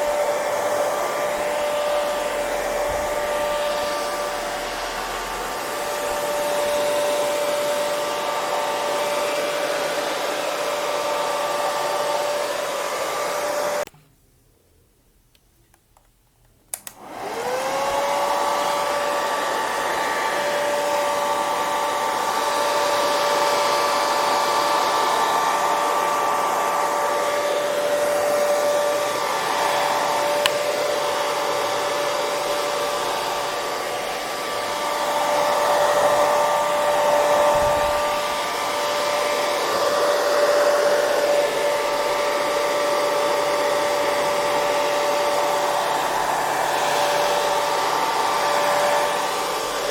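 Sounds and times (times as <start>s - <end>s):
hair dryer motor whine: 0.0s - 13.9s, 16.7s - 49.9s
blown air rushing: 24.3s - 42.3s.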